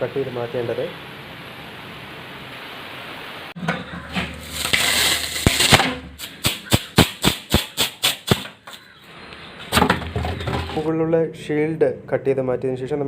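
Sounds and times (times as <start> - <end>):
rough scraping on metal: 3.6 - 6.4.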